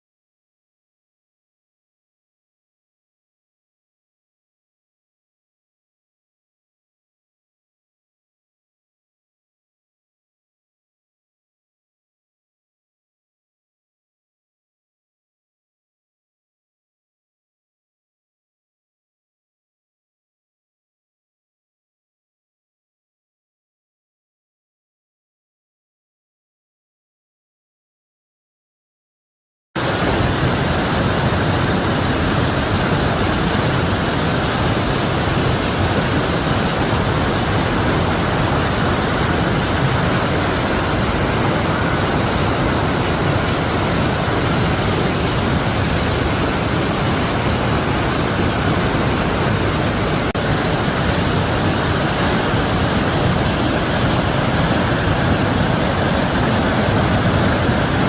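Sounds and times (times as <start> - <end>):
waterfall rushing: 29.8 - 58.0.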